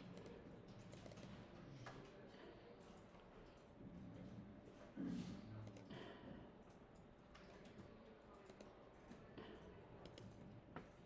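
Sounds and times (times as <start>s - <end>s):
computer mouse clicks: 0.1s - 1.2s, 8.4s - 8.7s, 10.0s - 10.4s.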